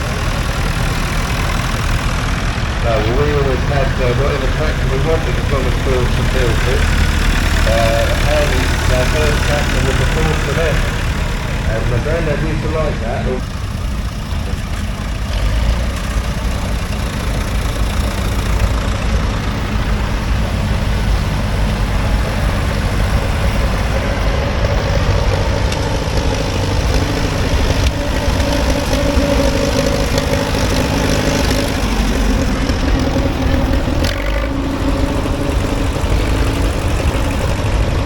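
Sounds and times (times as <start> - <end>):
higher engine note: 0.0 - 38.0
tractor engines throbbing: 0.0 - 38.0.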